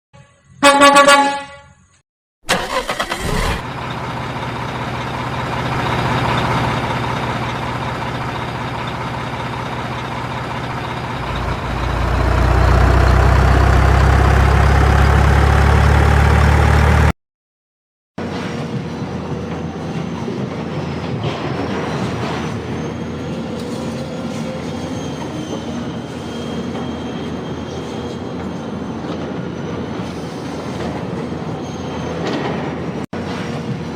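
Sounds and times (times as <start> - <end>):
truck horn blast: 0.2 - 1.9
truck engine under load: 2.4 - 17.2
vehicle noise: 2.5 - 17.1.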